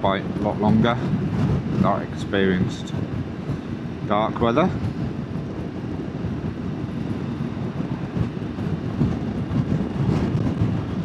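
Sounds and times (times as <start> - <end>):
rush of riding wind: 0.0 - 11.0.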